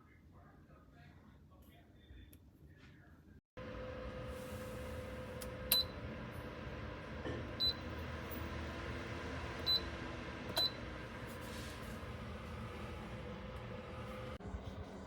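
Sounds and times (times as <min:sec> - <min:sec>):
heater fan running: 0:03.6 - 0:15.0.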